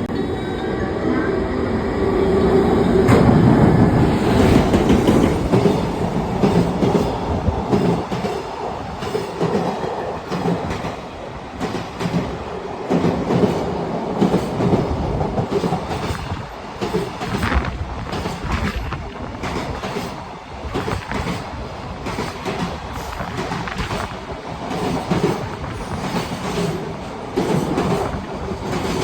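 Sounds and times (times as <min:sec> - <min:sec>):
train rumble: 0:00.0 - 0:29.0
train wheels clattering over joints: 0:11.6 - 0:29.0.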